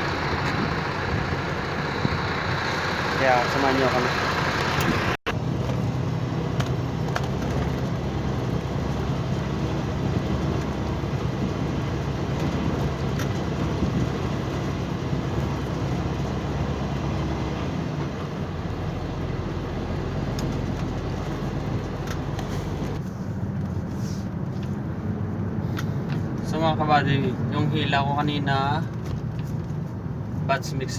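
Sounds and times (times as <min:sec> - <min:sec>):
heavy truck engine hum: 0:00.0 - 0:30.9
road noise: 0:00.0 - 0:30.9.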